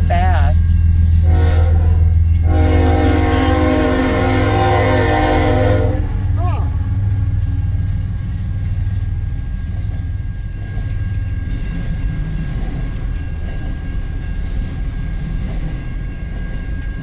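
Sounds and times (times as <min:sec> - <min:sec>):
locomotive engine drone: 0:00.0 - 0:12.3
freight wagons rumbling past: 0:00.0 - 0:17.0.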